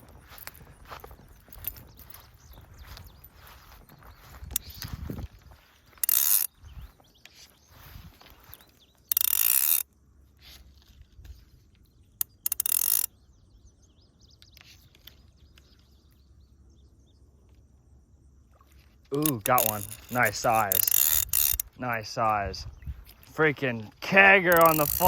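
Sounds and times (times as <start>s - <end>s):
fly reel buzzing: 5.9s - 6.6s, 9.1s - 9.8s, 12.3s - 13.1s, 19.1s - 22.4s, 24.3s - 25.0s.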